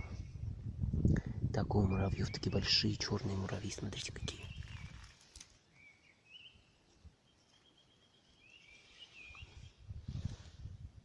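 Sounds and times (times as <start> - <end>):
songbird chirps: 1.7 - 9.9
soft rustle: 3.2 - 5.7, 8.4 - 11.0.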